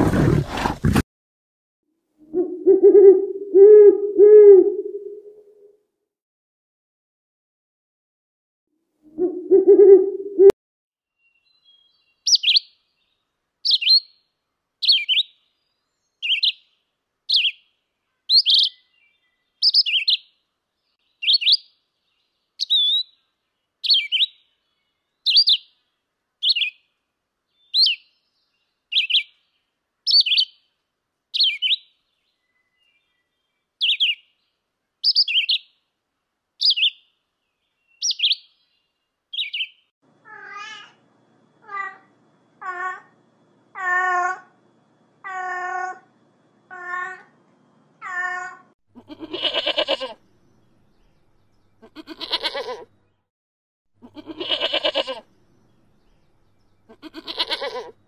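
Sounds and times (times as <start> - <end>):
bird chirping: 11.2 - 35.9, 36.6 - 39.9, 49.1 - 53.2, 54.2 - 58.0
cat meowing: 40.2 - 41.0, 43.8 - 44.5, 46.7 - 47.3, 48.0 - 50.2, 51.9 - 52.8, 54.0 - 55.2, 56.9 - 58.0.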